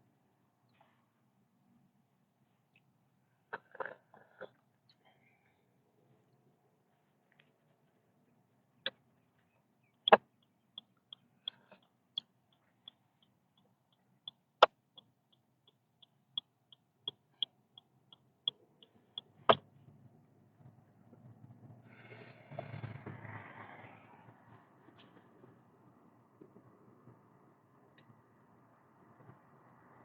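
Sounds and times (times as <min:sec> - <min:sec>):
low road noise: 0:00.0 - 0:30.0
turn signal ticking: 0:10.0 - 0:19.7.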